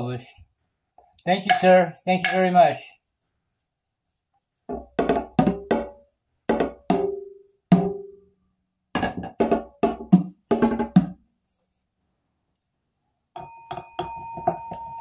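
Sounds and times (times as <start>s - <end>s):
hand percussion knocking: 13.4s - 15.0s.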